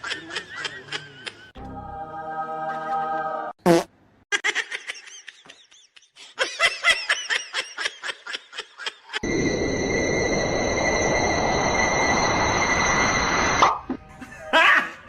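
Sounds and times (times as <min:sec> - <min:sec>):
hissing whirring noise with whine: 0:09.2 - 0:13.8
loud squeal: 0:09.2 - 0:13.9.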